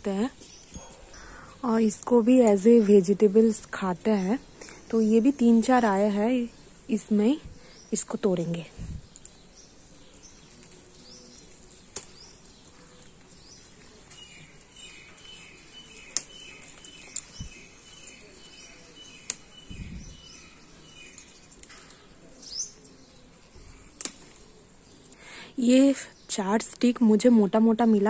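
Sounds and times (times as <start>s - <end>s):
flower stalks snapping: 9.0s - 19.7s, 21.1s - 25.2s.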